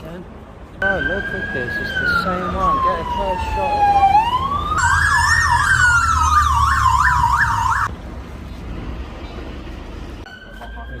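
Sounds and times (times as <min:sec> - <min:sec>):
vehicle rumble and road noise: 0:00.0 - 0:11.0
police siren: 0:00.8 - 0:07.9.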